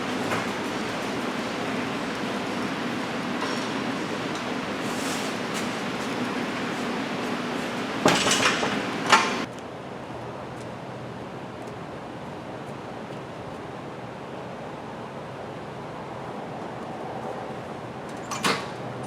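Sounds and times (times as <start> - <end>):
forklift engine humming: 0.0 - 9.5
shop background noise: 0.0 - 9.5
metal clanking and rattling: 7.6 - 9.5.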